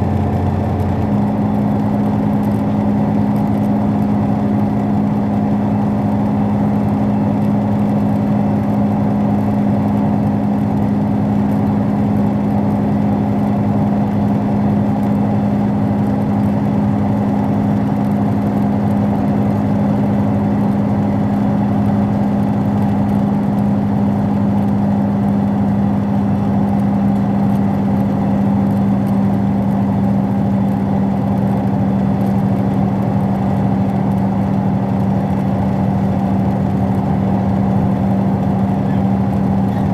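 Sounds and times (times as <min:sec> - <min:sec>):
train carriage hum and rumble: 0:34.8 - 0:39.9.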